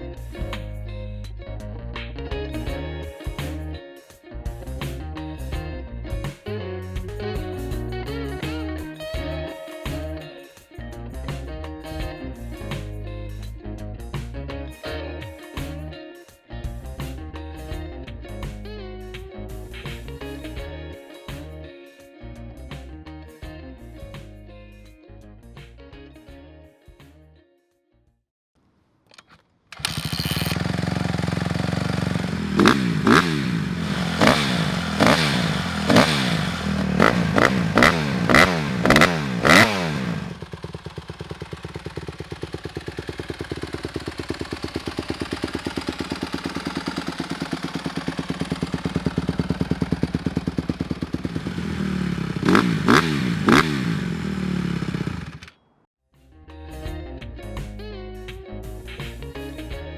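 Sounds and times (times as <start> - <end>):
motorcycle engine revving and idling: 29.8 - 55.6.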